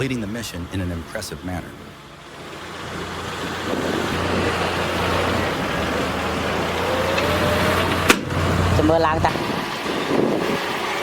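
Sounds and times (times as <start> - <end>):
heavy machinery engine under load: 1.8 - 11.0.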